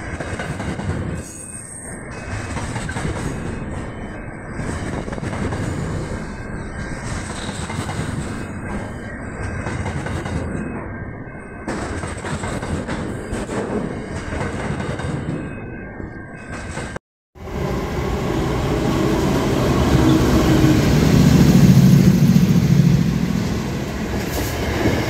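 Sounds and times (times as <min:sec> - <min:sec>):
freight train wheels rumbling: 0:00.0 - 0:10.9, 0:16.4 - 0:25.0.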